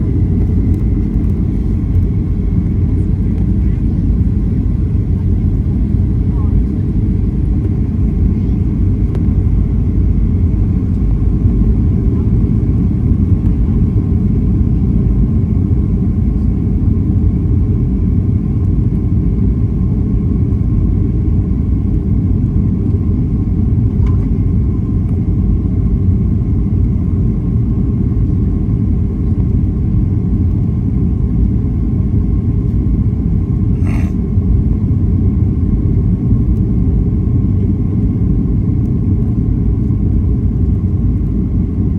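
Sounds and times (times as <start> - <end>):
airplane cabin rumble: 0.0 - 41.9.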